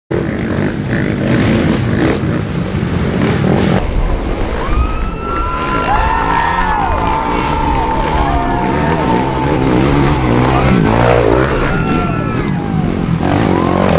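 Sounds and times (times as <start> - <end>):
dense rushing noise: 0.2 - 13.9
cartoon motorbike engines: 5.4 - 13.9.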